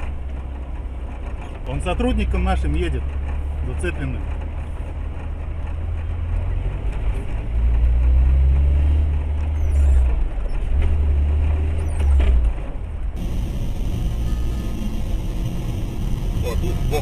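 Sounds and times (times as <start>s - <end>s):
road noise: 0.0s - 17.0s
vehicle engine rumble: 0.0s - 17.0s.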